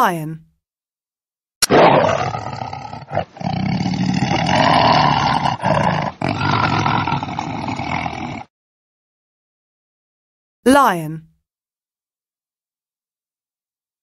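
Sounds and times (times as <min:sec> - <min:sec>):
lion roaring: 0:01.6 - 0:08.5.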